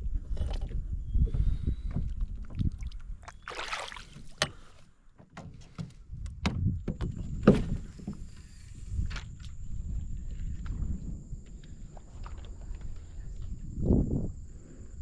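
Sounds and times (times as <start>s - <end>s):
knocks and clicks on kayak hull: 4.1s - 8.5s.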